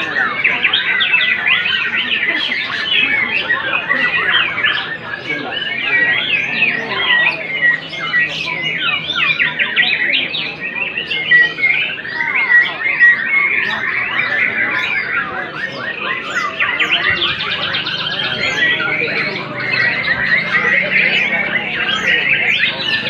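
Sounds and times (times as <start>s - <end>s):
birds singing chirps and trills: 0.0s - 23.0s.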